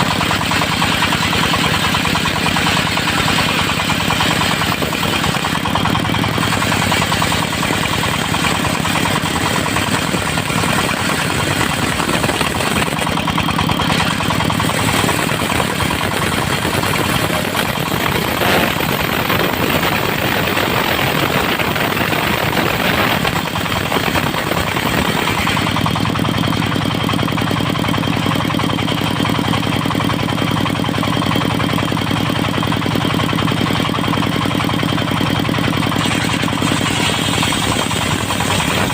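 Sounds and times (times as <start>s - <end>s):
harsh sawing noise: 0.0s - 26.0s, 35.6s - 38.9s
sawmill engine running: 0.0s - 38.9s.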